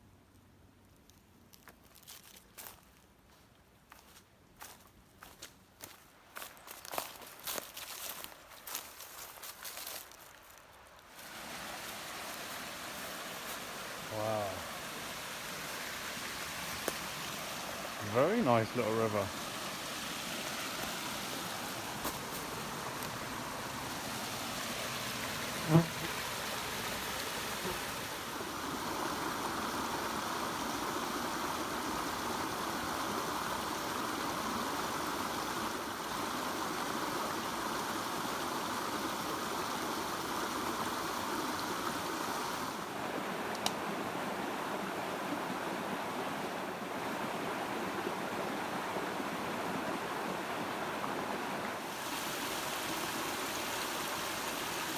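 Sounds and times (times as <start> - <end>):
water rushing over waterfall: 11.2 - 43.5, 48.6 - 54.9.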